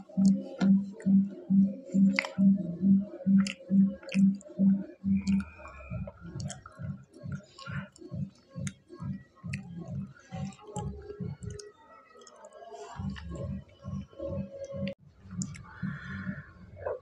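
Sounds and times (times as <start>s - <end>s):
man chewing food: 0.1s - 13.6s
wet mouth clicks: 0.2s - 13.5s, 14.6s - 15.8s.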